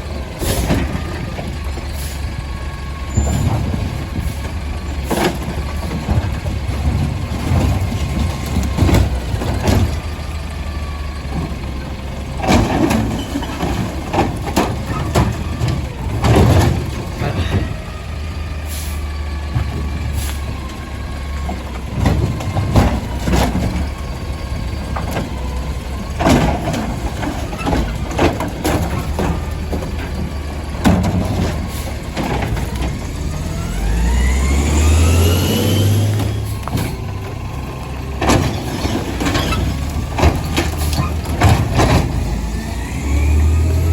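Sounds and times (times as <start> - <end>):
garbage truck engine running: 0.0 - 43.9
bins slammed against truck: 0.4 - 1.4, 3.1 - 10.2, 12.4 - 17.9, 21.5 - 24.0, 26.1 - 33.2, 38.2 - 42.6.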